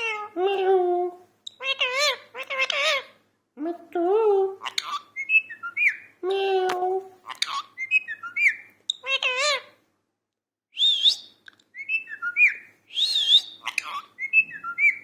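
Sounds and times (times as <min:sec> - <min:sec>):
parrot chirping: 0:00.0 - 0:00.4, 0:01.4 - 0:03.2, 0:04.6 - 0:06.5, 0:07.2 - 0:09.8, 0:10.8 - 0:15.0
parrot whistling: 0:10.8 - 0:15.0.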